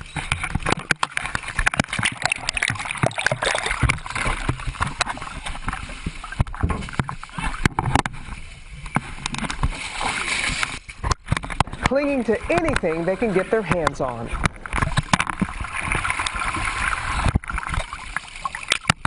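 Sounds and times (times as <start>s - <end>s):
water sloshing and splashing: 0.0s - 19.0s
voices: 11.9s - 14.4s.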